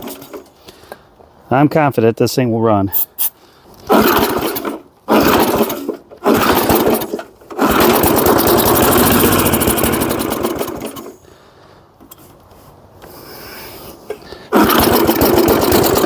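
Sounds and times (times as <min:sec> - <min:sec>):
lawn mower engine sputtering: 0:00.0 - 0:00.6, 0:03.8 - 0:11.2, 0:12.0 - 0:16.0.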